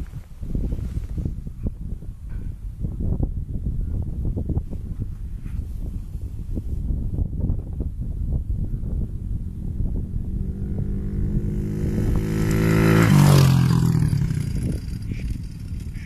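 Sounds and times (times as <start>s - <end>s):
motorcycle engine passing by: 9.0s - 16.0s.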